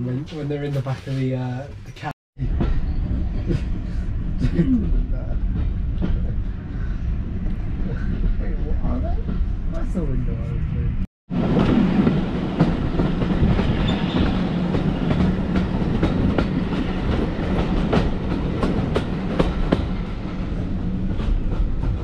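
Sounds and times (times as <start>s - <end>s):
train wheels rumbling on rail: 0.2s - 22.0s
wheels clickety-clack: 11.5s - 22.0s.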